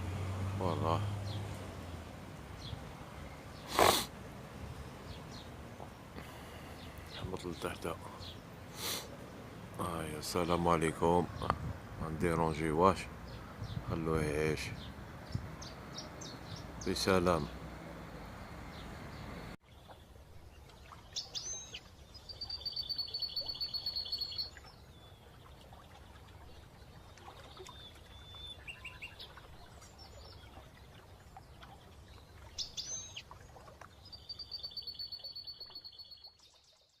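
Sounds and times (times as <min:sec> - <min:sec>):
songbird chirp and trill: 0:00.5 - 0:37.0.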